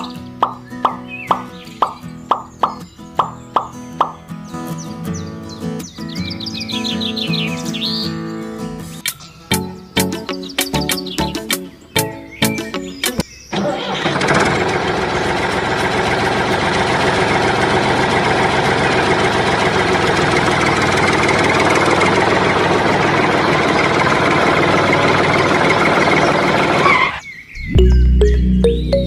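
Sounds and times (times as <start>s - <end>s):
small water pump motor droning: 13.5s - 27.2s.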